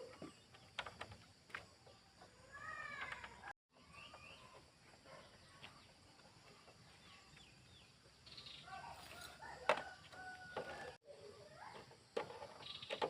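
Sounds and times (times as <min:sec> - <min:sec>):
faint bird chirps: 0:01.8 - 0:09.3.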